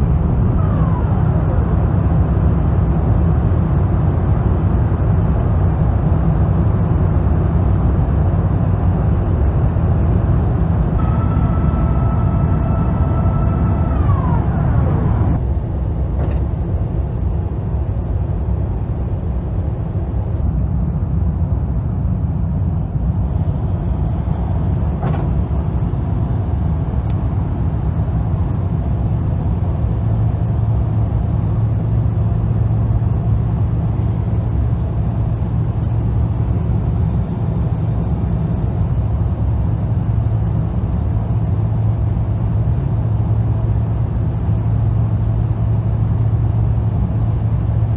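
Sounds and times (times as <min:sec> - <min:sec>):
steady low hum: 0:00.0 - 0:21.7
airliner cabin rumble: 0:00.0 - 0:28.1
high engine whine: 0:00.0 - 0:47.9.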